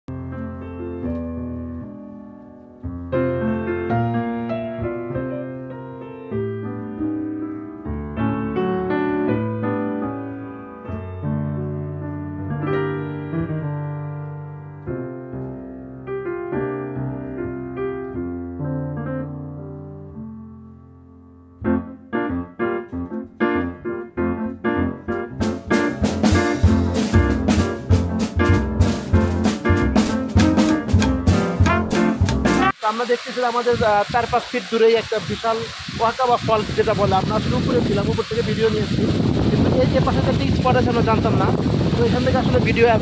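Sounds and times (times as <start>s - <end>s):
piano chords: 0.1s - 32.9s.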